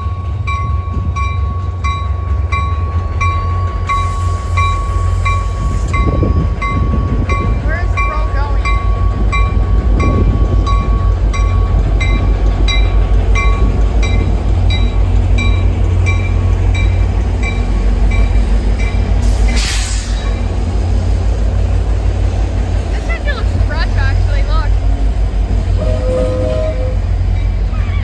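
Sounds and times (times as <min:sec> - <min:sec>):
train rumbling past: 0:00.0 - 0:28.0
short hiss of air: 0:19.2 - 0:20.3.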